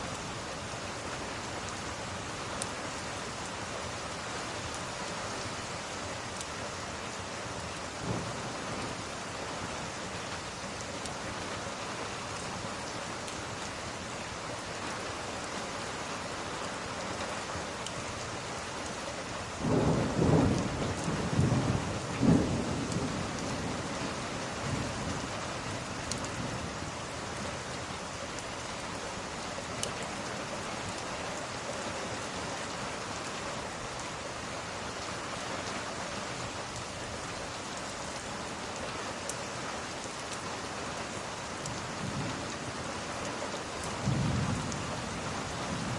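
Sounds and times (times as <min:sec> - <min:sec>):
steady rain falling: 0:00.0 - 0:45.9
thunder rumbling: 0:19.6 - 0:23.9, 0:44.0 - 0:45.9.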